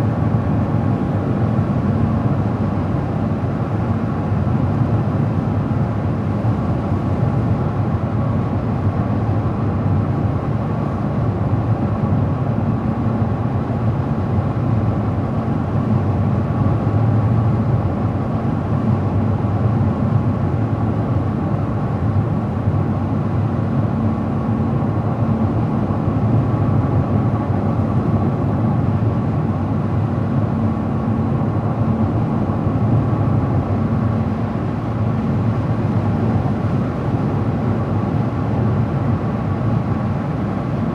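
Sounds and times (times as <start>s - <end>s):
car road noise: 33.8s - 40.9s.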